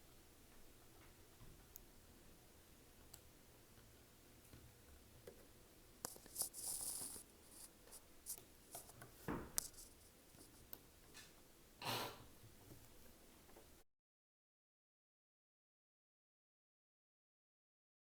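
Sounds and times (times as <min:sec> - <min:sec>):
scratchy rubbing hiss: 0:06.0 - 0:10.7.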